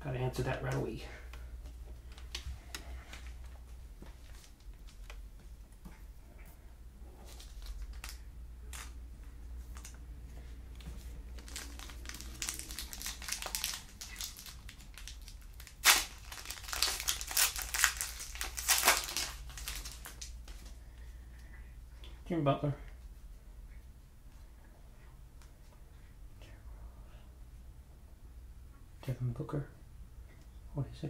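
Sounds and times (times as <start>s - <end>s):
foil wrapper crinkling and tearing: 7.3s - 9.0s, 11.3s - 20.4s.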